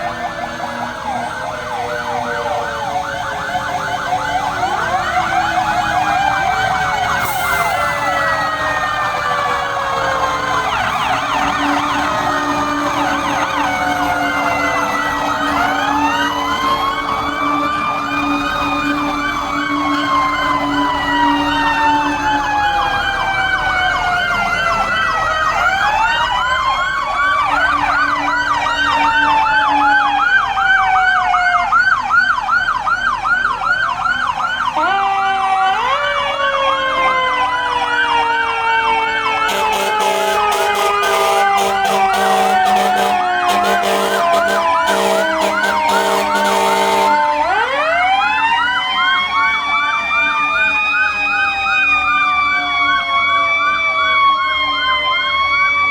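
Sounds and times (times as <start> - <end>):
fire truck sirens wailing: 0.0 - 55.9
siren yelp warbling: 0.0 - 55.9
rapid horn blasts: 39.5 - 47.5.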